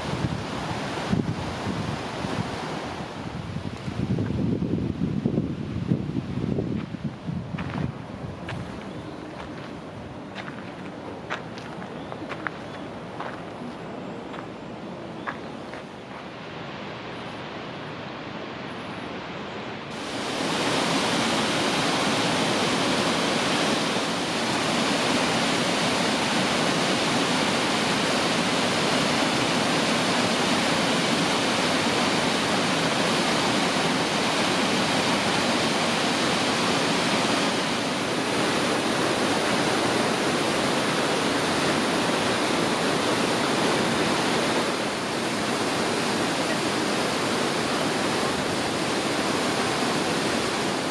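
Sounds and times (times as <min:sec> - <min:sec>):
waterfall rushing: 0:00.0 - 0:04.0, 0:16.3 - 0:50.9.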